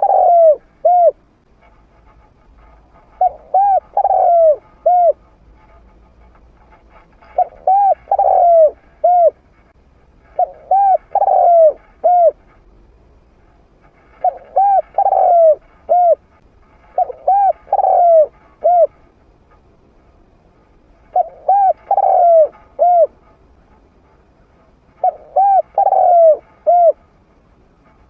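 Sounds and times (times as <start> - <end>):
dove cooing: 0.0 - 1.2, 3.1 - 5.2, 7.4 - 9.4, 10.2 - 12.5, 14.1 - 16.2, 16.9 - 19.0, 21.0 - 23.3, 25.0 - 27.0.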